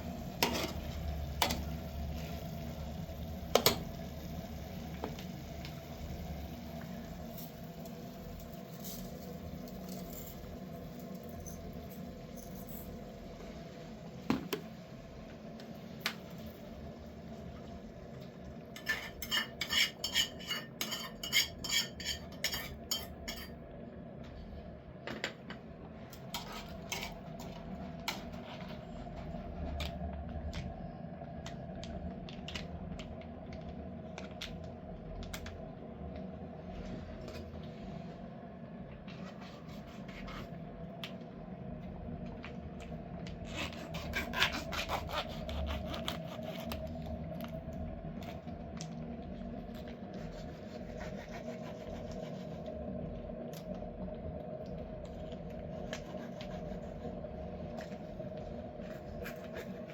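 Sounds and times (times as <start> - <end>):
low background hum: 0.0 - 59.9
metal utensils clinking and scraping: 18.8 - 23.6.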